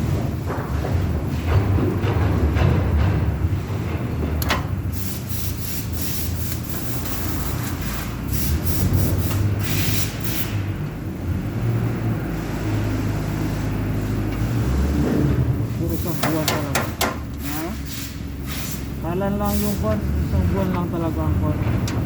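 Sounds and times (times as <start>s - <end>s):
low machine drone: 0.0s - 5.1s
short scraping hissing bursts: 4.9s - 10.7s, 15.9s - 20.0s.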